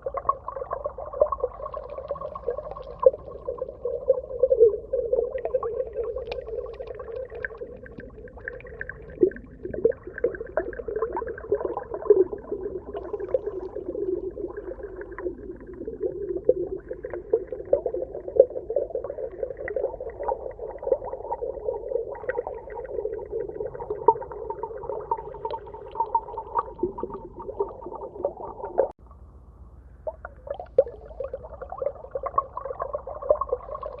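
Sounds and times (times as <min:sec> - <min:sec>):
underwater bubbling drone: 0:00.0 - 0:29.0, 0:29.7 - 0:34.0
scattered underwater clicks: 0:05.5 - 0:09.3.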